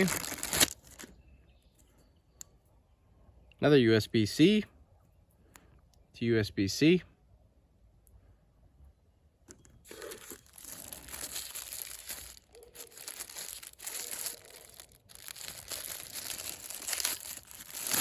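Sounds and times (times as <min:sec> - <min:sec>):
plastic packaging crinkling: 0:00.0 - 0:01.1, 0:09.8 - 0:18.0.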